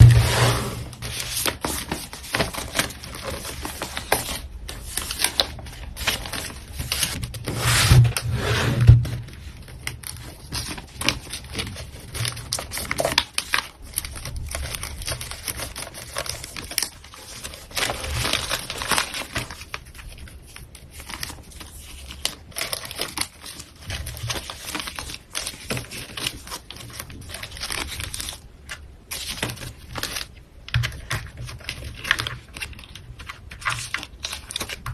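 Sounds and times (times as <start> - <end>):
packaging crinkling and rustling: 0.0 - 34.9
small clicks taps and scrapes: 30.7 - 34.9.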